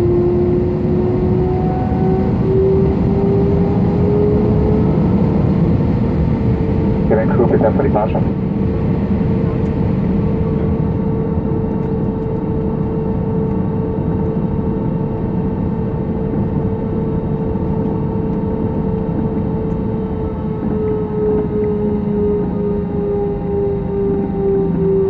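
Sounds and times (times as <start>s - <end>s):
airplane cabin engine rush: 0.0s - 25.0s.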